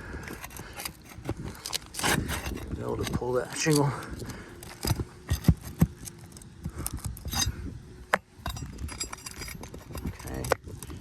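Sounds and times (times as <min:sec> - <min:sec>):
shingle scraping and clicking: 0:00.0 - 0:11.0.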